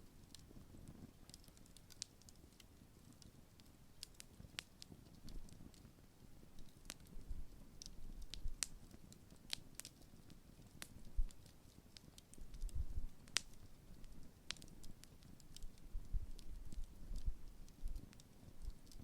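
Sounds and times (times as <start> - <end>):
campfire crackling: 0.0 - 19.0
low fire rumble: 0.0 - 19.0
sharp fire pops: 6.6 - 19.0.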